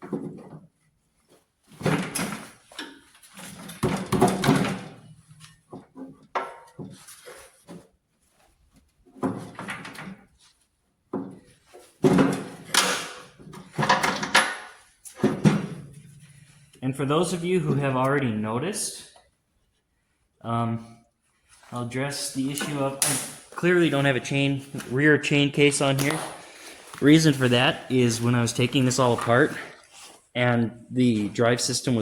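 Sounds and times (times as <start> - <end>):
metal parts clanking and rattling: 12.0 - 16.1.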